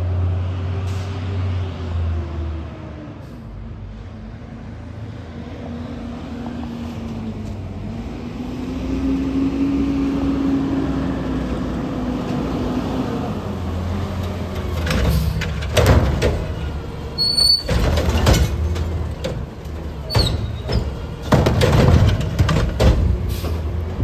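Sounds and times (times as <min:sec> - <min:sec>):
garbage truck engine whining: 0:06.2 - 0:24.0
metallic bangs: 0:13.6 - 0:24.0.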